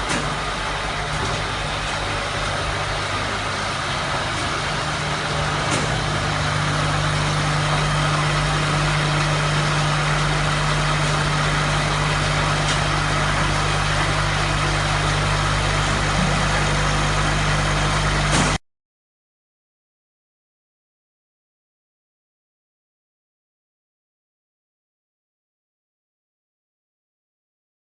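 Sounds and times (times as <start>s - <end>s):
thresher machine droning: 0.0s - 18.6s.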